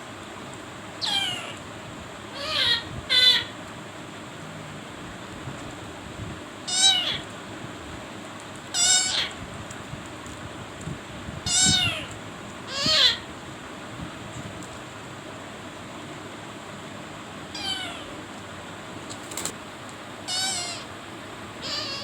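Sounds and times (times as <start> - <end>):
meow-like animal calls: 1.0 - 1.6, 2.3 - 3.5, 6.7 - 7.3, 8.7 - 9.4, 11.4 - 13.3, 17.5 - 18.3, 20.2 - 21.0, 21.6 - 22.0.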